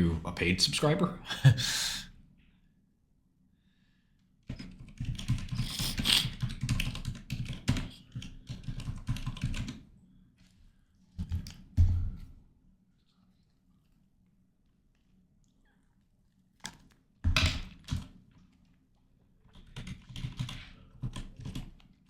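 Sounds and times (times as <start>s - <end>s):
typing on computer keyboard: 4.4s - 9.9s, 17.4s - 18.2s, 19.4s - 22.0s.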